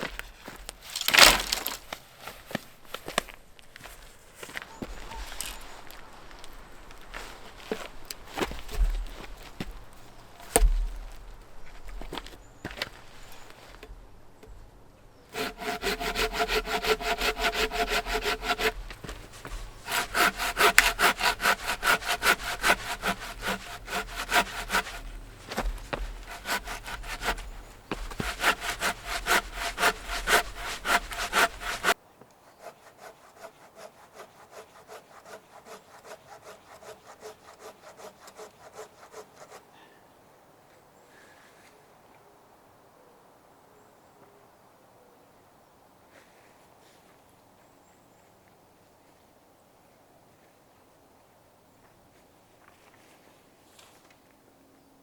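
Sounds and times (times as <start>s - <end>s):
hand saw cutting through log: 10.4s - 10.8s, 15.3s - 39.7s.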